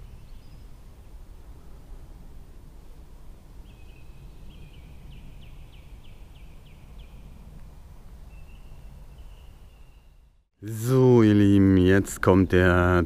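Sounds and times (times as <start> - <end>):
small bird singing: 0.0 - 0.8, 3.6 - 7.4, 8.2 - 10.5.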